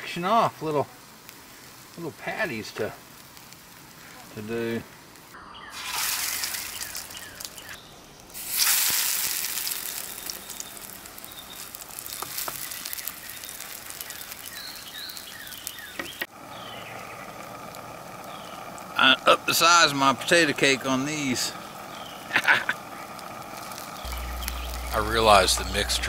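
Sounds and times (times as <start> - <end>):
potato cakes sizzling in oil: 0.0 - 26.0.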